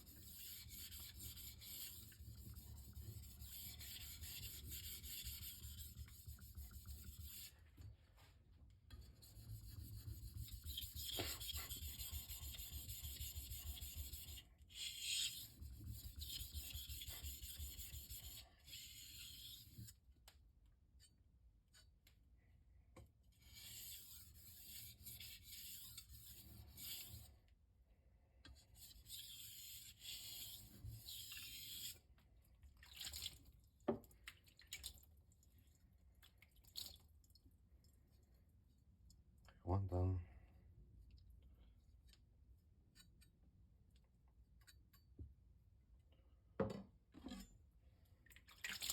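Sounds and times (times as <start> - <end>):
knife scraping on whetstone: 0.1 - 7.5, 23.4 - 27.3.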